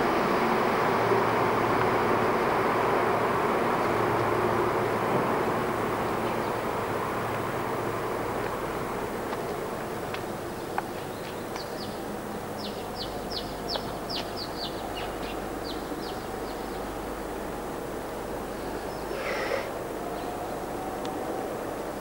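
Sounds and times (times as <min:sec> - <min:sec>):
outdoor background noise: 0:00.0 - 0:22.0
bird chirping: 0:12.6 - 0:16.8.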